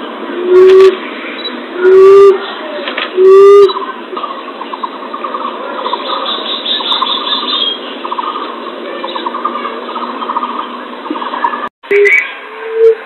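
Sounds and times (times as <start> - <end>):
bird trills: 3.2 - 12.9
high bird chatter: 3.7 - 12.4.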